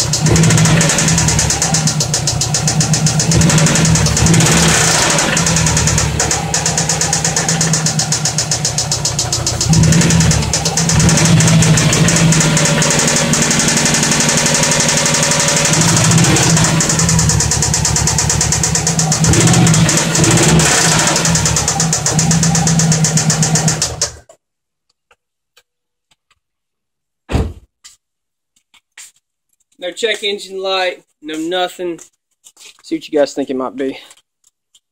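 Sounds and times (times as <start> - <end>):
car engine knocking: 0.0 - 24.2.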